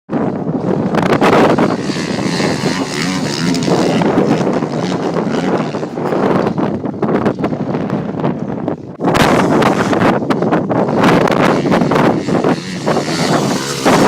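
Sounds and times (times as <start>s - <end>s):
motocross bike engine revving: 0.9s - 6.8s, 10.8s - 14.0s.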